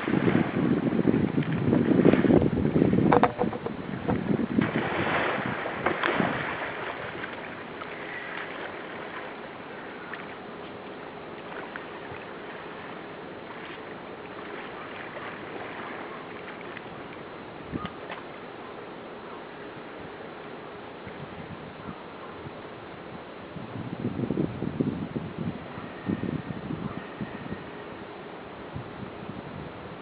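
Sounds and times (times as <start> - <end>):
wind on microphone: 0.0 - 7.4, 21.0 - 27.8, 28.6 - 30.0
water around a kayak: 0.0 - 30.0.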